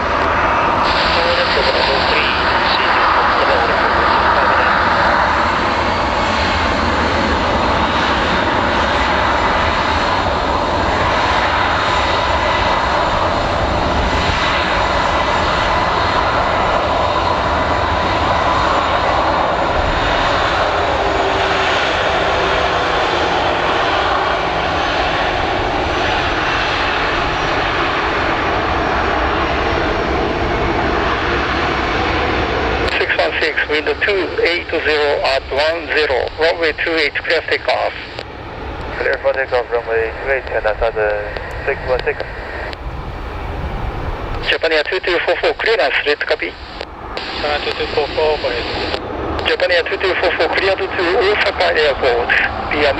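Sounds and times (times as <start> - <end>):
airliner engines idling: 0.0 - 52.9.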